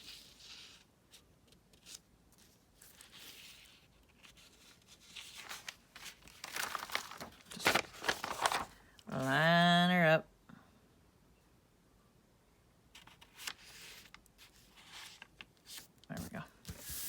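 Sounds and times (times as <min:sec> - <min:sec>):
paper rustling and crinkling: 0:01.5 - 0:08.9, 0:13.0 - 0:17.0.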